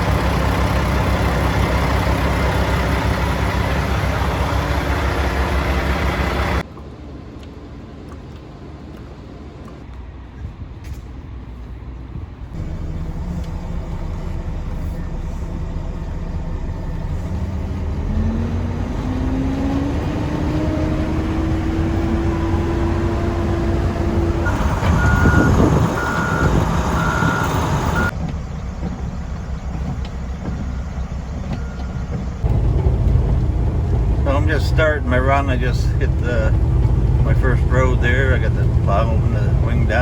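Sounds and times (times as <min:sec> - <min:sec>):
diesel truck engine revving: 0:00.0 - 0:06.6, 0:12.5 - 0:40.0
reversing alarm beeping: 0:24.4 - 0:28.1.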